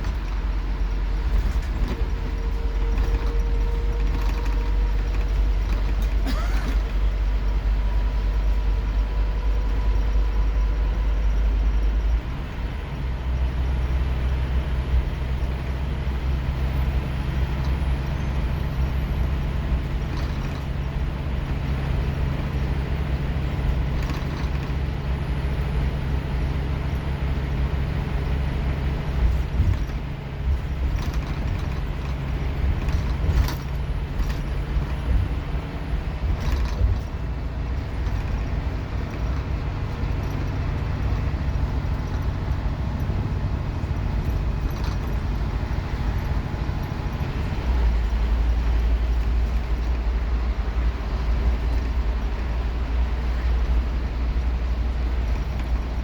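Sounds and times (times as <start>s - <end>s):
bus diesel engine accelerating: 0.0s - 56.0s.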